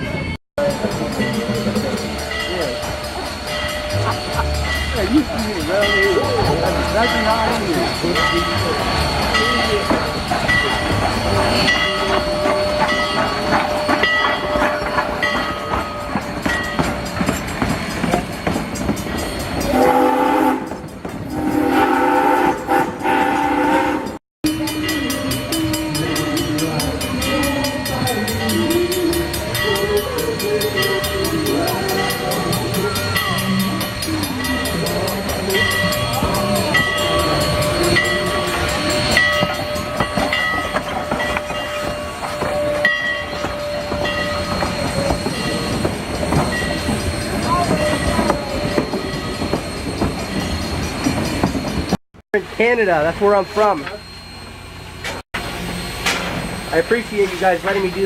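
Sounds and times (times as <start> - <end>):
locomotive chime whistle: 0.0 - 58.0
train wheels clicking over rail joints: 0.6 - 19.7.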